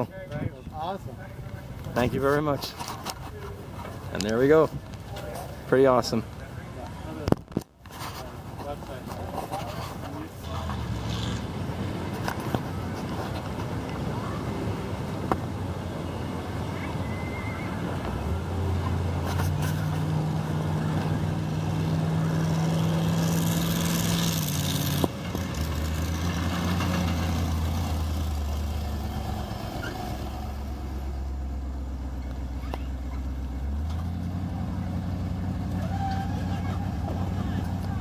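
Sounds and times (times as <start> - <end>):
truck engine running: 10.0 - 38.0.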